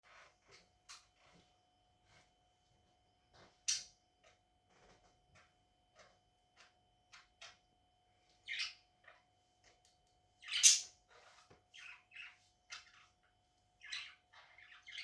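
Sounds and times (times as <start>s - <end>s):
budgerigars chirping: 8.5s - 9.2s, 10.4s - 10.9s, 11.8s - 13.0s, 13.8s - 15.0s.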